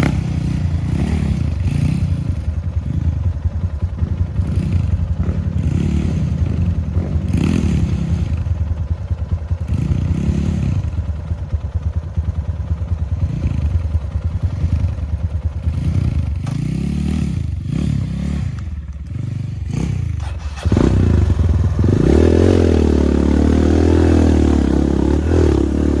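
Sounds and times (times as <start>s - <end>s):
dirt bike engine revving: 0.0s - 8.7s, 9.6s - 11.0s, 15.6s - 26.0s.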